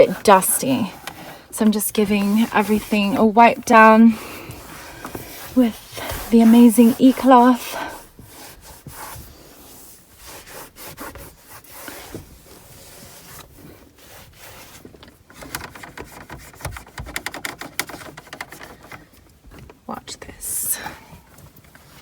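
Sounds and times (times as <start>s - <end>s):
cloth wiping surfaces: 0.0s - 14.9s.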